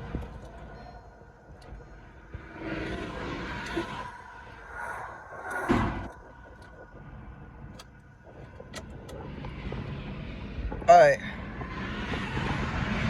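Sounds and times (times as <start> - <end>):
cars passing: 0.0 - 13.0.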